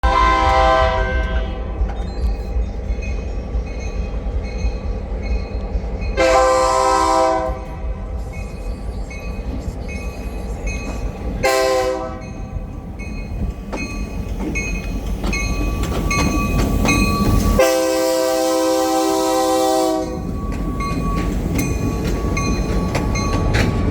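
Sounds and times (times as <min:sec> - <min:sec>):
train horn blasts: 0:00.0 - 0:01.8, 0:06.2 - 0:08.0, 0:11.4 - 0:12.4, 0:17.5 - 0:20.2
low rumble of moving train: 0:00.0 - 0:23.9.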